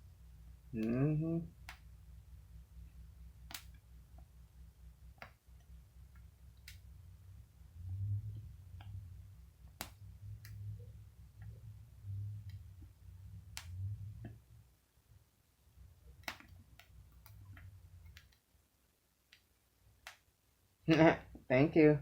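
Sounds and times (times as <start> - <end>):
cards snapping clicks: 3.5 - 3.8, 16.2 - 18.4.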